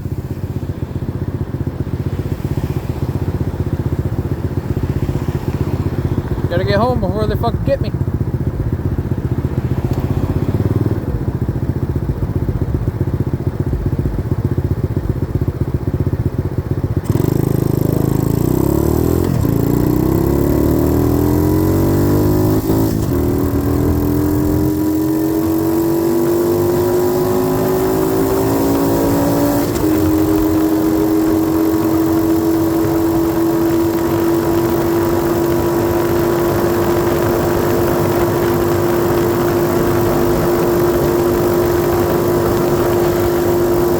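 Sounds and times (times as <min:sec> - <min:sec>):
gear changes: 0:03.6 - 0:43.9
dirt bike engine revving: 0:17.0 - 0:43.9.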